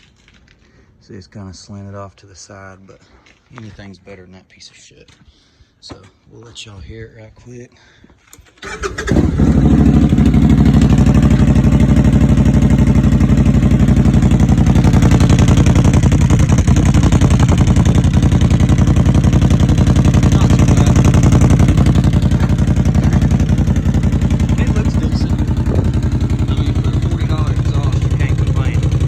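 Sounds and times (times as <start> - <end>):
atv engine starting and idling: 8.3 - 29.0.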